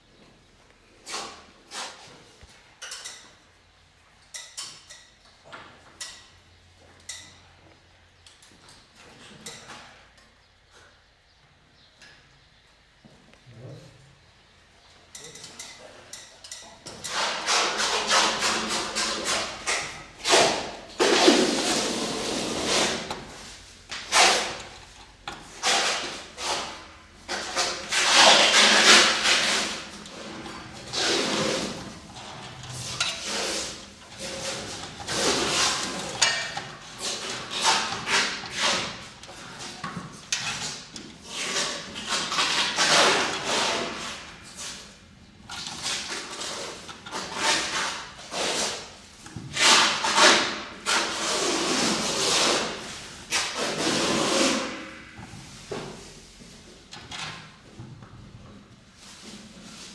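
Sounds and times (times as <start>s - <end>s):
knocking and clattering of work: 27.3s - 44.1s.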